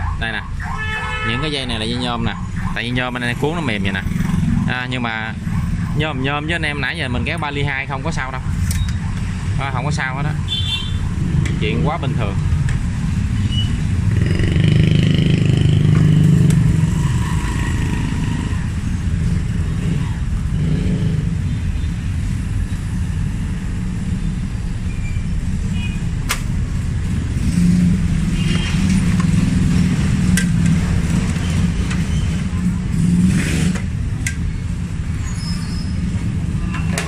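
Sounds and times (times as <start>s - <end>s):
road traffic rumble: 0.0s - 37.0s
sharp click: 26.3s - 26.5s.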